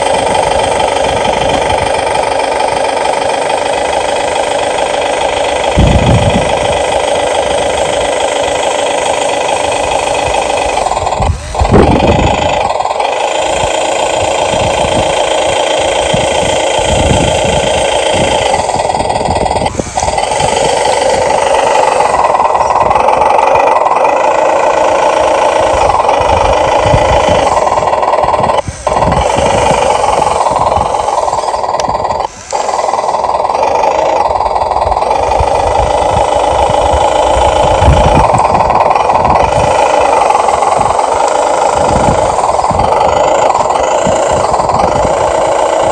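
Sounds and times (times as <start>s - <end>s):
toy excavator motors whirring: 0.0s - 45.9s.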